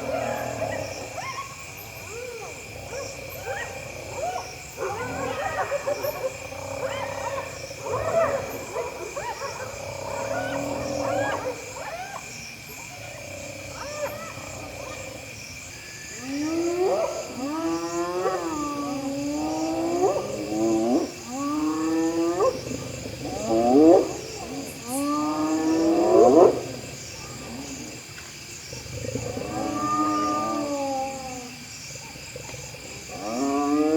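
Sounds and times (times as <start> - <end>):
hyenas yelping calls: 0.0 - 12.3
insects chirring: 0.0 - 33.9.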